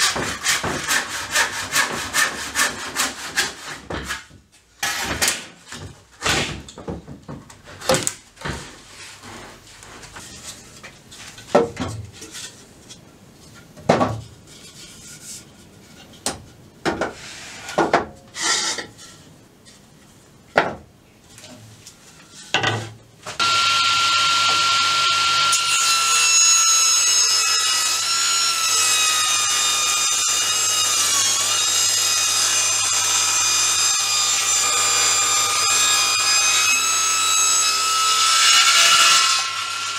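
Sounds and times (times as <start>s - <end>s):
handsaw strokes: 0.0s - 3.8s
table saw whine: 23.4s - 39.9s.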